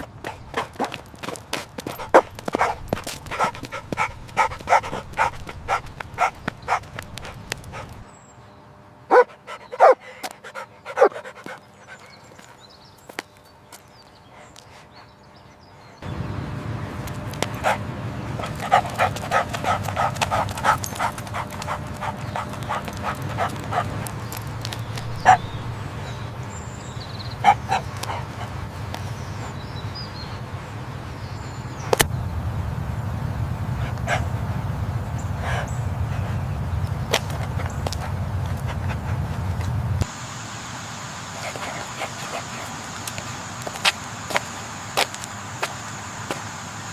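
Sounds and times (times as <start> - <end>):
dog making short rhythmic sounds: 1.9 - 8.0, 18.4 - 25.6, 27.4 - 28.6
low rumble: 16.1 - 40.0.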